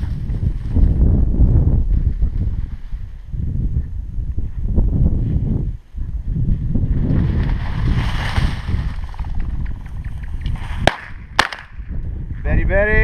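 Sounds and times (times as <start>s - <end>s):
wind buffeting microphone: 0.0s - 13.0s
rustling through brush: 6.8s - 11.2s.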